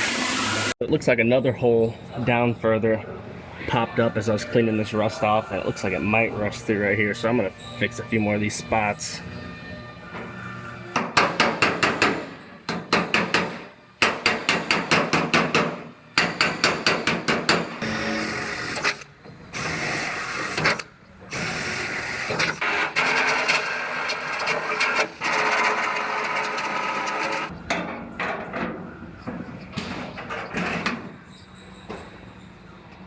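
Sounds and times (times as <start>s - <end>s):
power tool grinding metal: 0.0s - 0.8s, 19.6s - 27.5s
rapid hammer strikes on metal: 11.0s - 17.9s.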